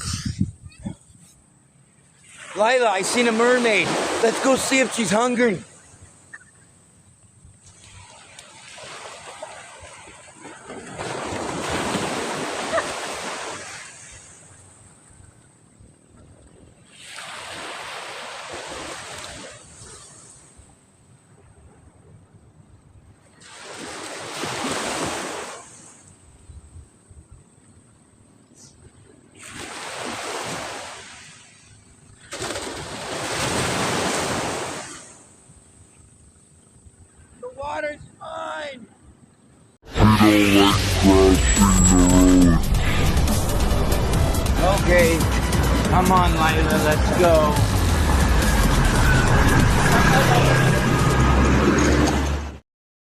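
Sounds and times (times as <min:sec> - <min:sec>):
ocean wave breaking on shore: 0:02.2 - 0:05.9, 0:07.7 - 0:14.7, 0:16.8 - 0:20.6, 0:23.4 - 0:26.1, 0:29.4 - 0:35.4, 0:40.2 - 0:52.3.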